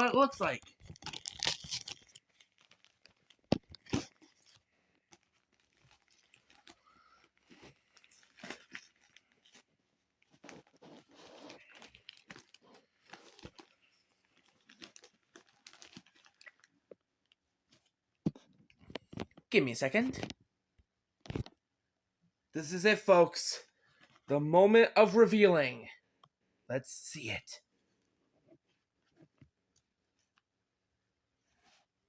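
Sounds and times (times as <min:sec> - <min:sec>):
packaging tearing and crinkling: 0:00.8 - 0:09.7, 0:10.3 - 0:16.7.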